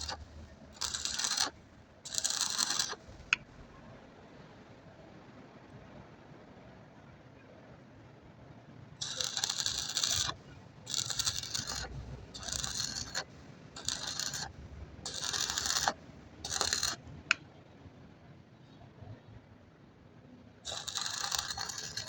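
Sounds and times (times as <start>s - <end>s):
scraping on metal: 0.0s - 1.5s, 2.1s - 3.3s, 9.0s - 17.0s, 20.7s - 22.0s.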